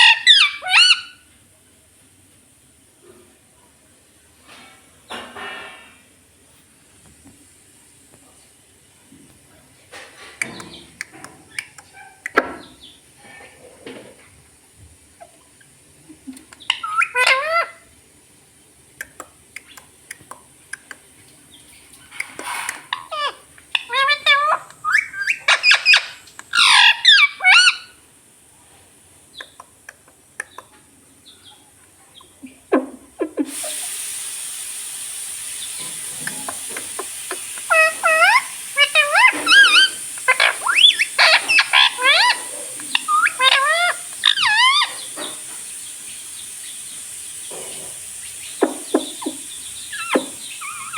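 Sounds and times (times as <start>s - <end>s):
parrot squawking: 0.0s - 1.2s, 16.6s - 17.9s, 22.4s - 28.0s, 35.6s - 45.7s, 47.5s - 50.9s
steady hiss: 1.0s - 31.3s, 32.8s - 50.9s.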